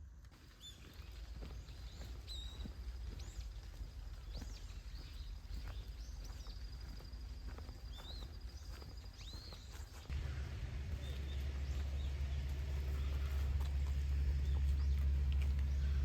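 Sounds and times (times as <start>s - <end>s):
birds chirping: 0.4s - 16.0s
low rumble: 10.1s - 16.0s.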